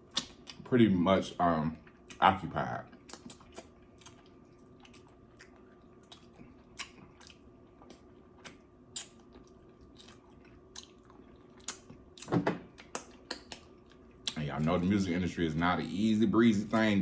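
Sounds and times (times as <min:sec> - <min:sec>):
low steady hum: 0:00.0 - 0:17.0
chewing mouth smacks: 0:00.1 - 0:00.7, 0:02.9 - 0:14.4.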